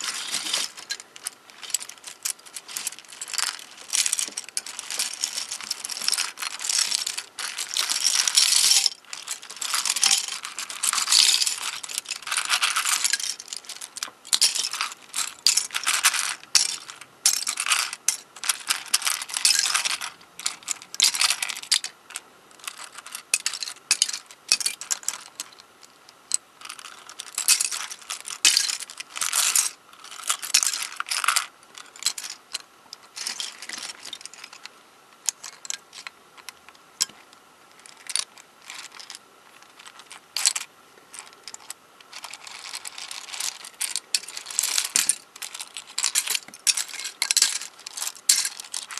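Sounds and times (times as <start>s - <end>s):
plastic puzzle pieces clicking: 37.8s - 48.9s.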